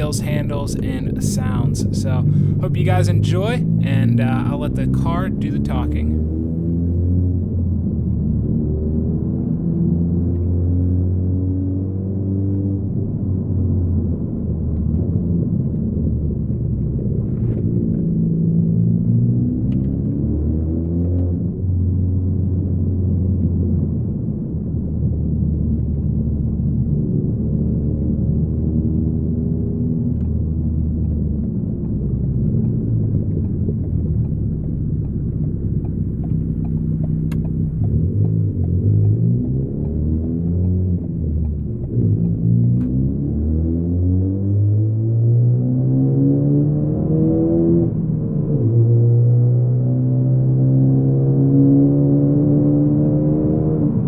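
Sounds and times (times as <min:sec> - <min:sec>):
car engine droning in cabin: 0:00.0 - 0:54.0
light ticks: 0:30.2 - 0:43.0.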